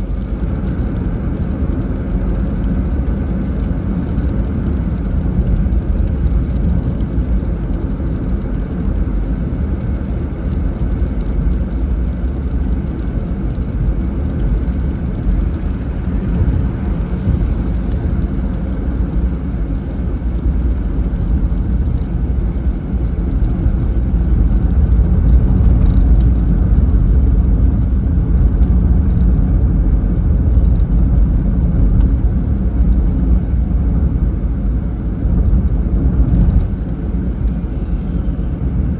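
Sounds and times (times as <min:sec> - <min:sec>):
car driving on wet road: 0:00.0 - 0:38.9
rain: 0:00.0 - 0:38.9.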